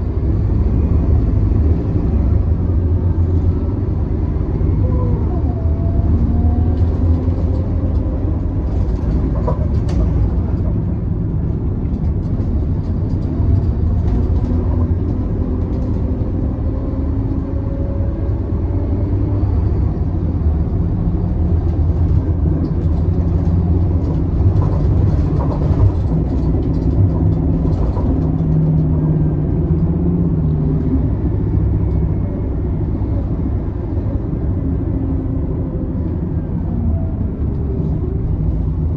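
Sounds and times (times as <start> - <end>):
bus body rattles and clicks: 0.0 - 38.9
bus diesel engine rumbling: 0.0 - 38.9.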